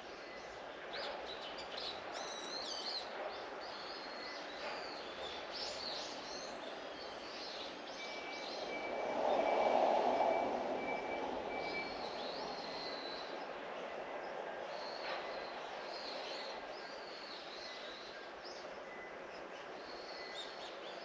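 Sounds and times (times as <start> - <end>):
steady outdoor rush: 6.5 - 15.9
faint high beep: 8.0 - 13.0.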